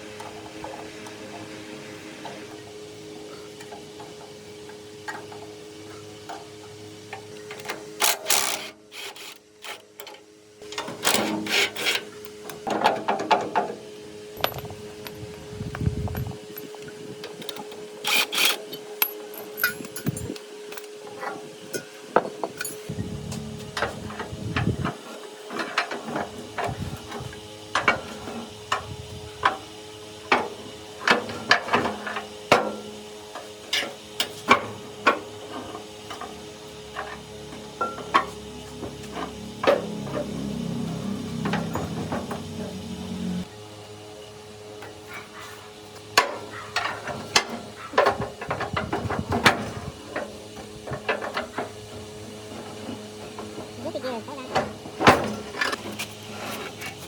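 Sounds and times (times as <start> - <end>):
metal knocks and clinks: 14.4 - 15.3, 19.0 - 20.4, 41.3 - 42.6.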